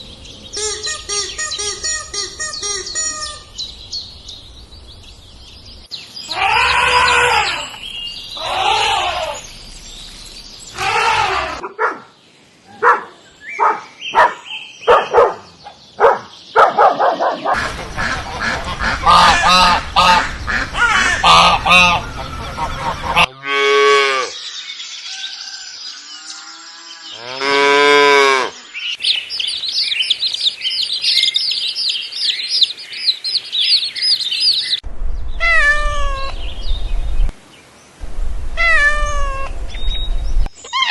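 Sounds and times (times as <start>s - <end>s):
long drawn-out animal calls: 6.3s - 7.8s, 8.4s - 9.4s, 10.7s - 11.6s
fowl honking and quacking: 17.5s - 23.9s.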